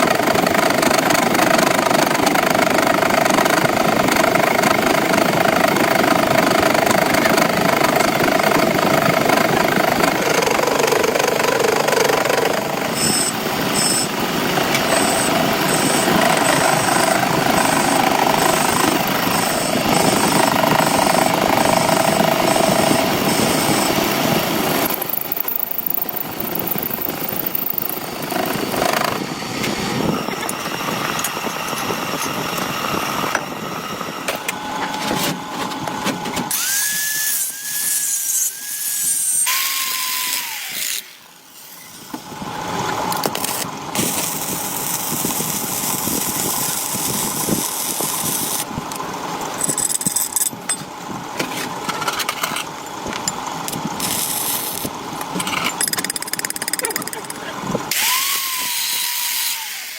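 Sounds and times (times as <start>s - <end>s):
power tools machining steel: 0.0s - 50.6s, 52.0s - 59.9s
high whine gliding down: 4.0s - 37.3s.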